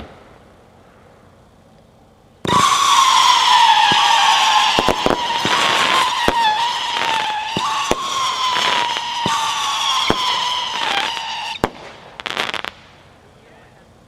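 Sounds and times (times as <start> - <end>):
firework shots popping: 0.0 - 0.5, 2.4 - 13.1
firework whistle falling in pitch: 2.4 - 11.7.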